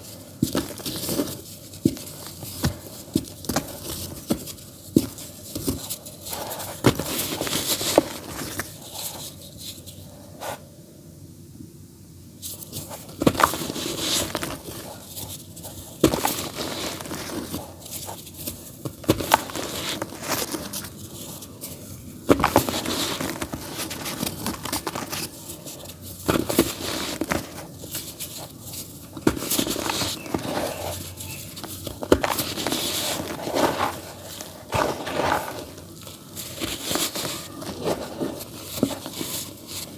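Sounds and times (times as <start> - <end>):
dirt crumbling and crunching: 22.2 - 39.9.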